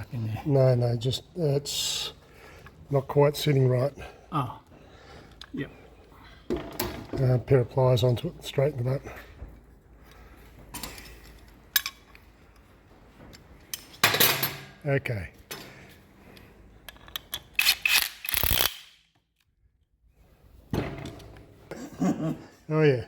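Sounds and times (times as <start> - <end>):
metallic clicks of hand tools: 16.8 - 19.0.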